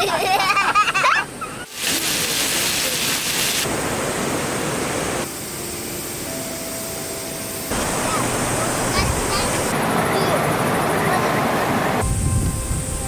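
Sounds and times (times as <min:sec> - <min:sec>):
flowing river water: 0:01.7 - 0:05.4, 0:07.7 - 0:12.0.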